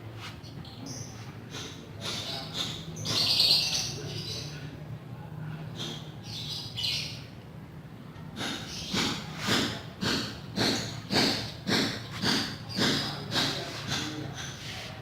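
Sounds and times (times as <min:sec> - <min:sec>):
hand rubbing on wood: 0:09.0 - 0:15.0.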